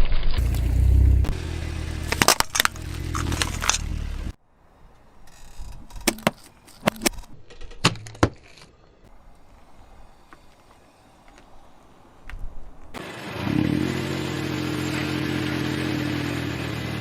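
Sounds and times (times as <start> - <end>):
car engine running: 0.4 - 4.4, 13.0 - 17.0
objects crushed under tyre: 2.0 - 4.0
sharp clicks and knocks: 5.5 - 8.7.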